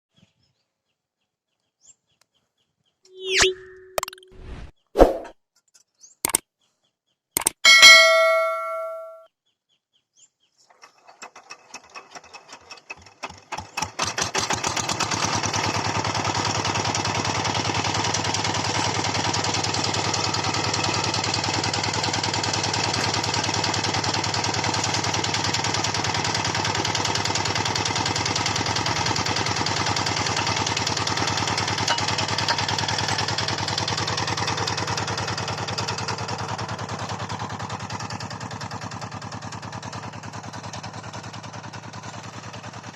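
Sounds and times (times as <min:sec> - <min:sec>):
small tractor engine starting: 0:10.5 - 0:42.9.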